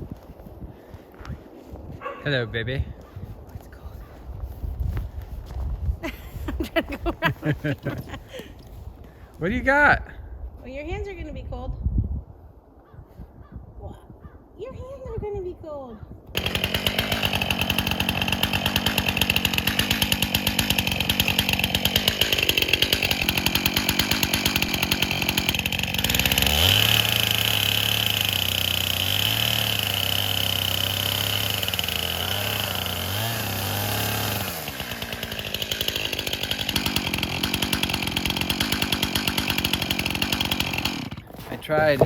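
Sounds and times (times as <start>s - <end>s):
chainsaw idling and cutting: 6.7s - 8.7s, 16.3s - 42.0s.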